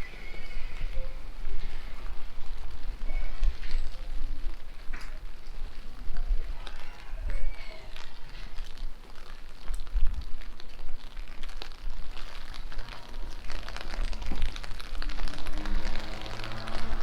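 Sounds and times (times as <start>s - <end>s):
faint music: 0.0s - 9.4s
rain pattering: 0.0s - 17.0s.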